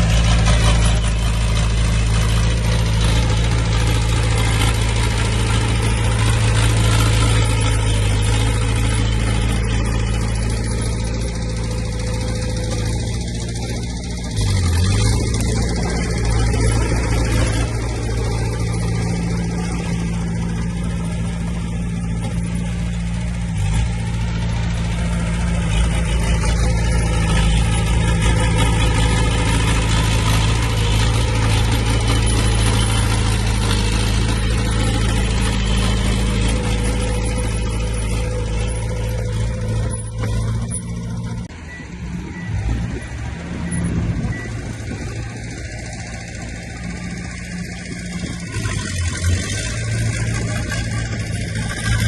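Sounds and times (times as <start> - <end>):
heavy diesel machinery engines: 0.0 - 52.0
faint beeps: 34.2 - 46.2.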